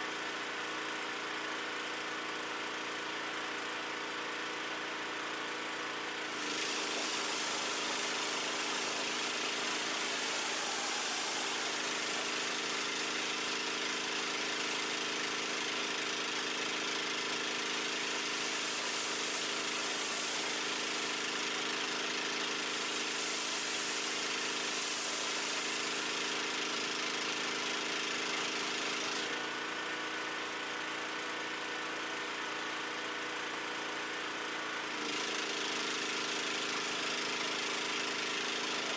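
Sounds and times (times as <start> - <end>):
pressure washer engine humming: 5.8 - 29.6, 35.1 - 38.9
water spray hissing: 6.3 - 15.2, 17.8 - 26.4.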